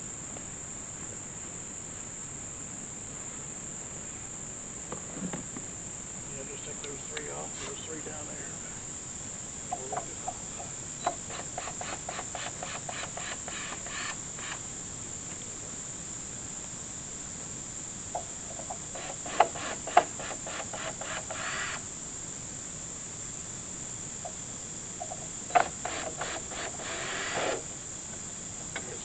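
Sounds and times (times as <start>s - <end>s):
crickets chirping: 0.0s - 29.0s
rapid ticking: 9.7s - 14.6s.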